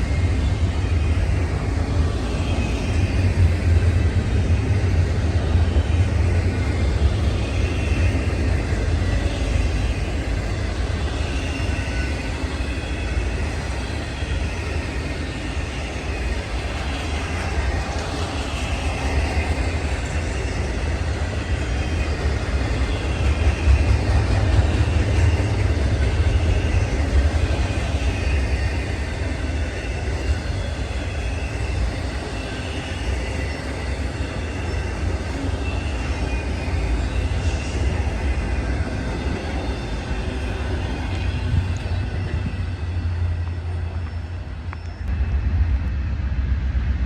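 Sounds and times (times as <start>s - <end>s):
train wheels rumbling: 0.0s - 47.0s.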